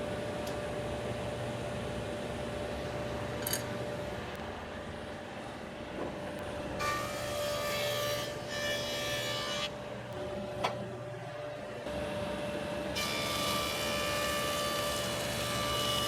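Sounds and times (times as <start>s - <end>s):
planer cutting board whine: 5.9s - 16.0s.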